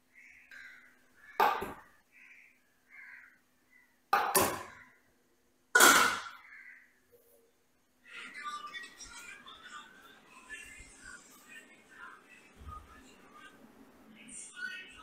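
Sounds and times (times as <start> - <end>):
faint steady hum: 0.0 - 15.0
crows cawing: 0.1 - 4.0, 4.6 - 5.2, 6.2 - 7.1.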